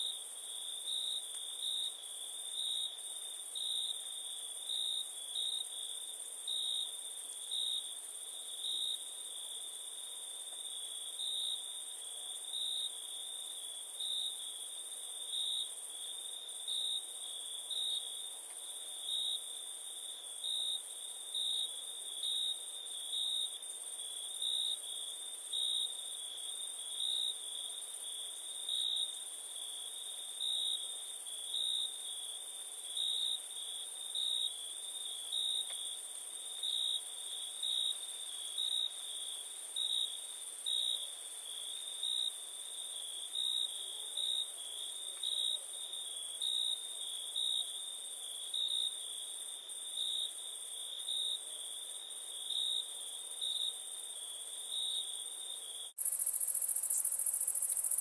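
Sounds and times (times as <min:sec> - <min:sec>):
crickets chirring: 0:56.0 - 0:58.0
high insect hiss: 0:56.0 - 0:58.0.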